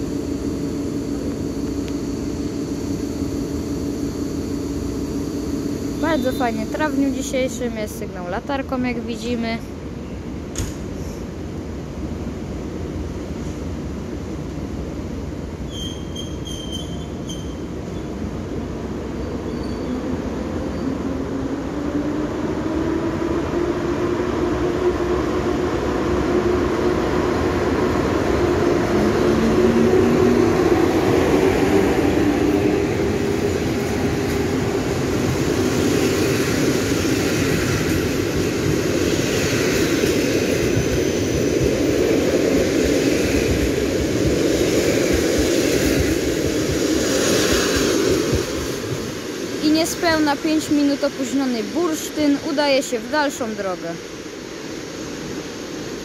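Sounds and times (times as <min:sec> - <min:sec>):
electric locomotive motor hum: 0:00.0 - 0:10.5, 0:11.3 - 0:56.0
train wheels rolling on track: 0:00.0 - 0:56.0
short high-pitched tones: 0:00.1 - 0:07.2.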